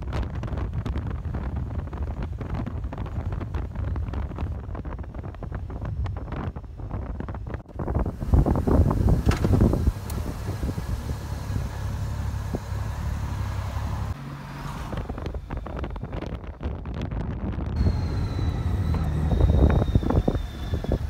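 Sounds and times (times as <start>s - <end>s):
motorcycle engine and road rumble: 0.0s - 21.0s
wind noise: 0.0s - 21.0s
faint high whistle: 17.8s - 21.0s.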